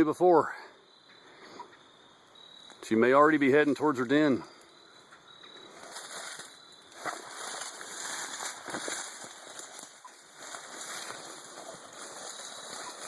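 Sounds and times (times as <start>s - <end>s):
insects trilling: 0.0s - 13.0s
footsteps crunching through dry leaves: 5.7s - 13.0s.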